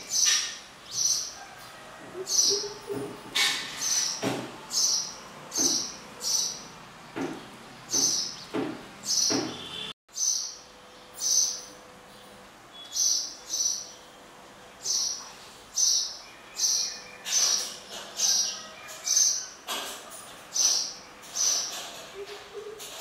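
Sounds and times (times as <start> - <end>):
small bird chirping: 10.1 - 14.2.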